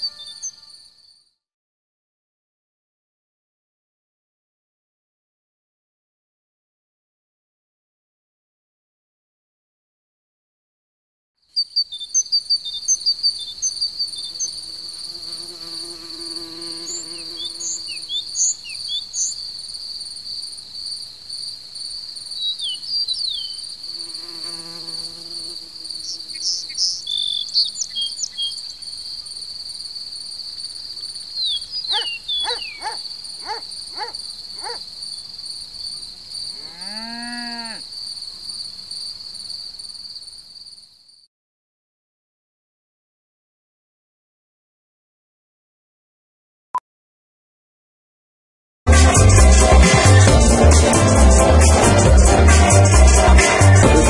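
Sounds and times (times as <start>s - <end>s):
bird chirps: 0.0s - 1.3s, 11.6s - 14.6s, 16.8s - 19.5s, 22.3s - 23.7s, 26.0s - 29.4s, 31.3s - 34.8s
crickets chirring: 11.6s - 41.2s
low insect buzzing: 14.0s - 18.7s, 23.7s - 27.0s
rising and falling call: 31.5s - 34.8s.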